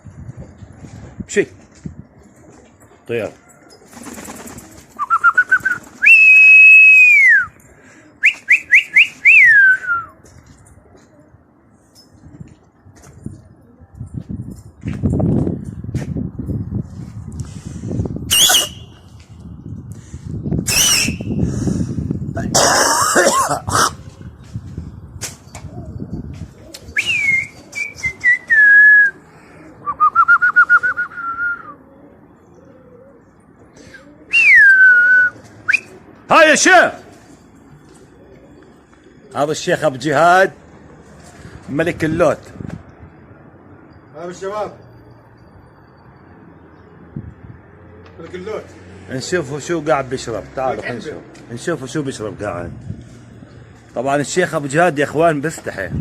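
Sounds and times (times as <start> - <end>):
person whistling loudly: 5.0 - 7.5, 8.2 - 10.1, 18.3 - 19.0, 20.7 - 21.4, 27.0 - 29.2, 29.8 - 31.8, 34.3 - 35.9.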